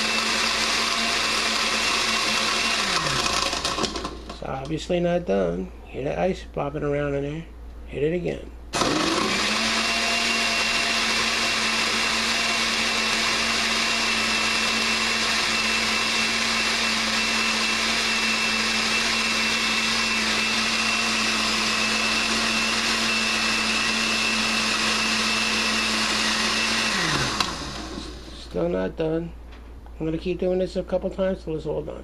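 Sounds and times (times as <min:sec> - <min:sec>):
blender chopping ice: 0:00.0 - 0:04.4, 0:08.8 - 0:28.3.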